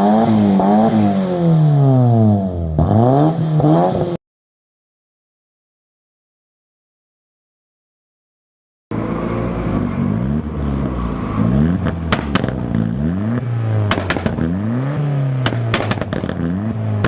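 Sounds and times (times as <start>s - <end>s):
car engine revving: 0.0s - 4.2s, 8.9s - 17.0s
sharp exhaust cracks: 11.8s - 17.0s.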